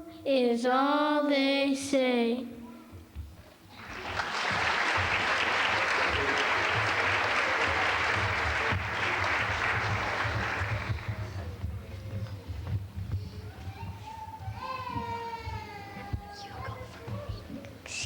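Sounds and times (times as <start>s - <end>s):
audience applauding: 3.8s - 11.5s.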